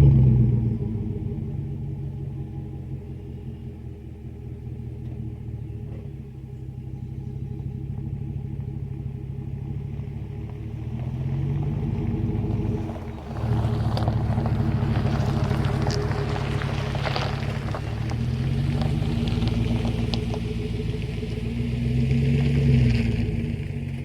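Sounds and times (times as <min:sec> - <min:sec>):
car exhaust low rumble: 0:00.0 - 0:24.0.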